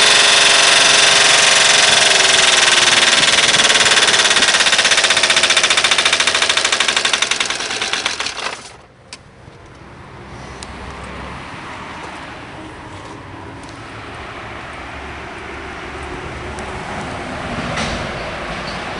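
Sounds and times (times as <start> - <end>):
diesel engine running with rapid pulse: 0.0 - 8.9.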